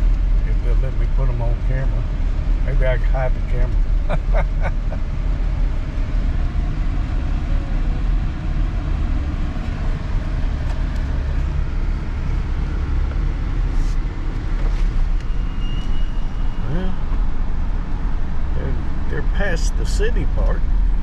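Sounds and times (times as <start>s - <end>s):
car engine rumble: 0.0s - 21.0s
road noise: 0.0s - 21.0s.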